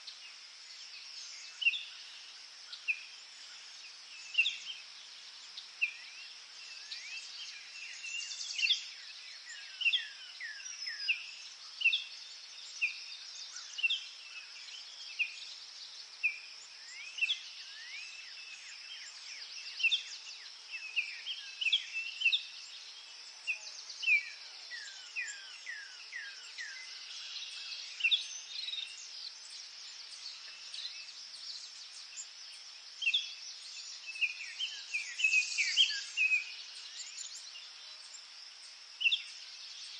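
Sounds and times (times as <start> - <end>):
high insect-like hiss: 0.0 - 39.9
birds chirping and singing: 16.8 - 38.2.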